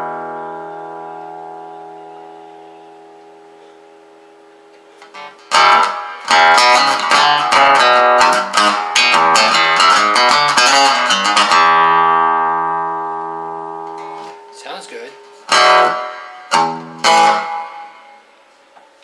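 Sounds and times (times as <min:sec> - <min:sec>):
amplified acoustic guitar: 0:00.0 - 0:18.2.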